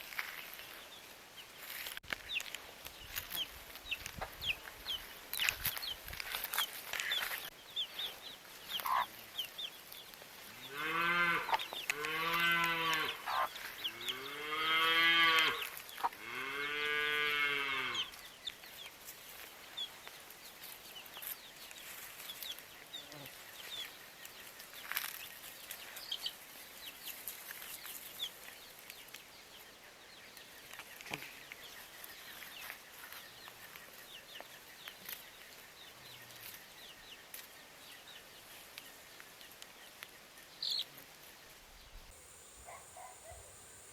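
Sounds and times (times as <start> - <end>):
faint bird chirps: 41.9 - 43.9.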